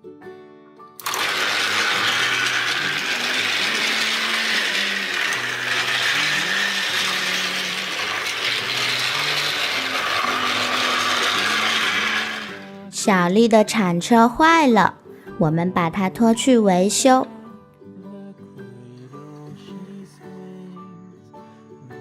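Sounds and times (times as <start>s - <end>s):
toy train motor whirring: 1.0s - 12.8s.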